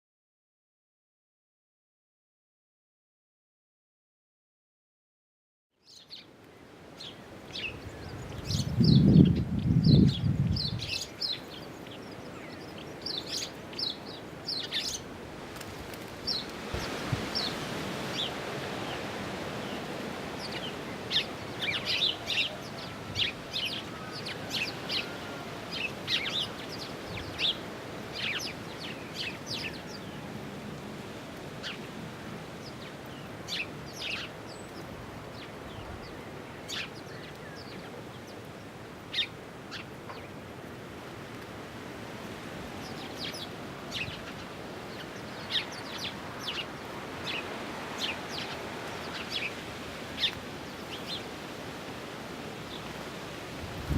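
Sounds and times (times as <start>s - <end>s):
birds chirping: 5.8s - 15.1s, 15.9s - 30.4s, 31.6s - 40.4s, 42.8s - 51.6s
steady background hiss: 10.8s - 53.9s.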